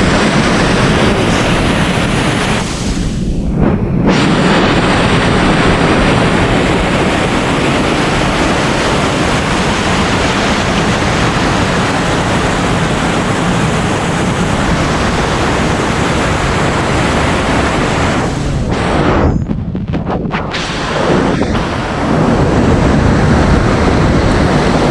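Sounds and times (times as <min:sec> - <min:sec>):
waterfall rushing: 0:04.1 - 0:19.0.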